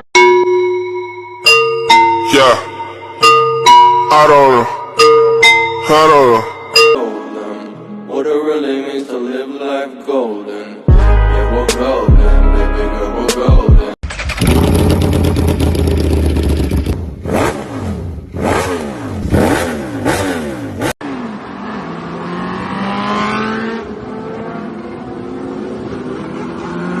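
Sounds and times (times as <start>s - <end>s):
engine accelerating: 14.0s - 27.0s
motorcycle engine revving: 14.0s - 27.0s.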